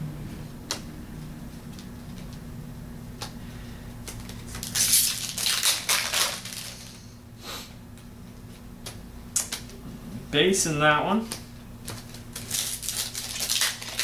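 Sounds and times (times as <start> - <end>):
cards being handled: 4.0 - 7.0, 11.2 - 14.0
foil wrapper tearing and crumpling: 4.1 - 7.0, 11.9 - 14.0.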